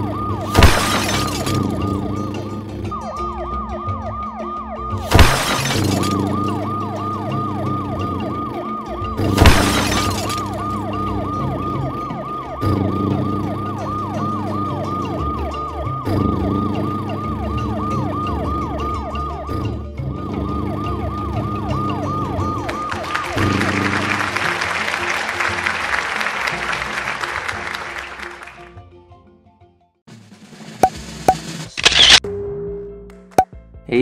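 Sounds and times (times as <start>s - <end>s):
yelping siren: 0.0s - 5.1s, 5.8s - 24.8s.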